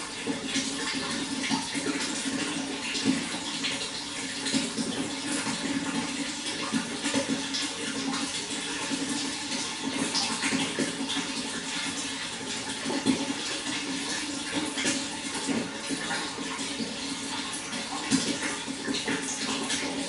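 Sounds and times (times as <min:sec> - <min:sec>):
running water splashing: 0:00.0 - 0:20.0.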